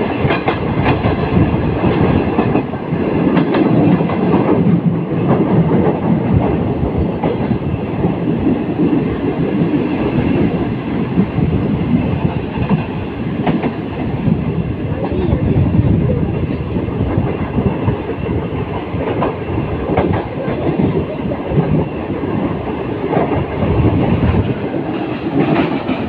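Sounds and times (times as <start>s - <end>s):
wheels clacking over rail joints: 0.0s - 11.4s, 17.2s - 26.0s
train wheels rumbling on rail: 0.0s - 26.0s.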